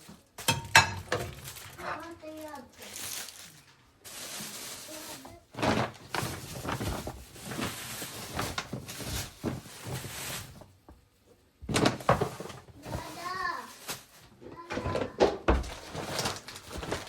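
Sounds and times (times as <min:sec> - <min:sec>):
household objects knocking and clattering: 0:00.4 - 0:01.8, 0:11.6 - 0:13.2, 0:14.4 - 0:17.0.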